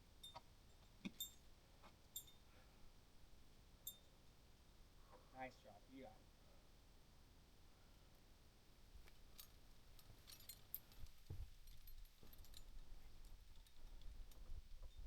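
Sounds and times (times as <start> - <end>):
metallic clinks of climbing hardware: 0.2 - 1.5, 2.1 - 2.5, 3.8 - 4.2, 9.0 - 15.0.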